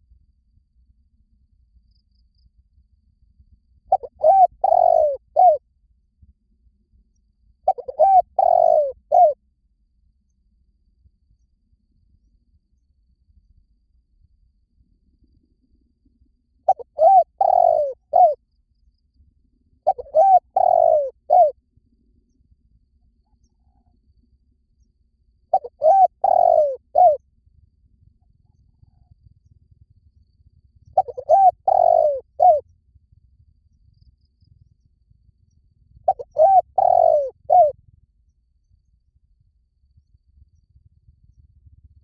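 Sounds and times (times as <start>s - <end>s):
dove cooing: 3.9s - 5.6s, 7.7s - 9.4s, 16.7s - 18.4s, 19.9s - 21.5s, 25.5s - 27.2s, 31.0s - 32.6s, 36.1s - 37.8s.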